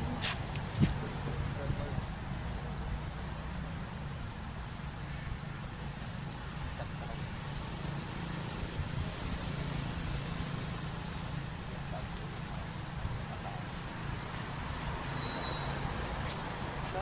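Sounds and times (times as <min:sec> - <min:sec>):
faint high chirps: 0:15.1 - 0:15.9.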